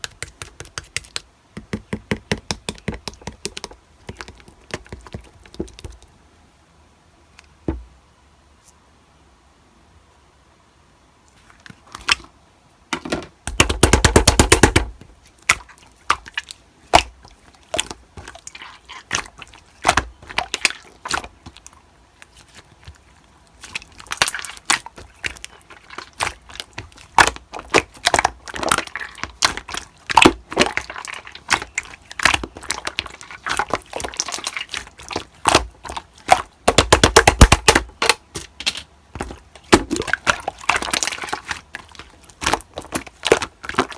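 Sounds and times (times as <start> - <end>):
slime crackling and popping: 23.6 - 43.9.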